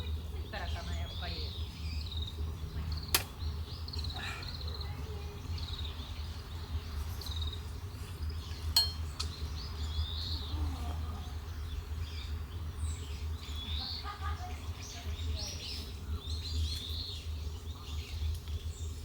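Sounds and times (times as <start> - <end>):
small birds chirping: 0.0 - 19.0
ringing clink: 8.8 - 9.3.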